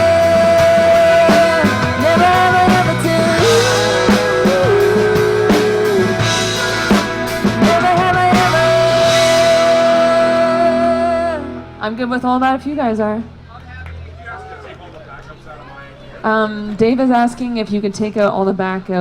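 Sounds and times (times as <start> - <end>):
live country band playing: 0.0 - 12.0.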